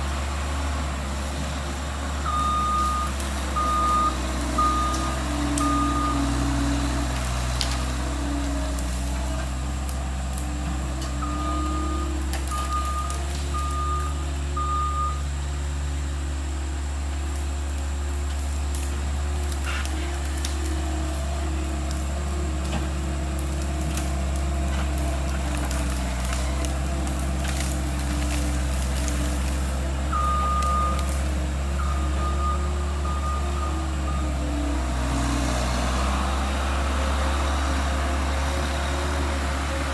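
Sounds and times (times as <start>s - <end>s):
loader engine running: 0.0s - 39.9s
backup alarm beeping: 2.2s - 6.3s, 11.2s - 15.3s, 30.1s - 31.2s, 31.8s - 34.4s.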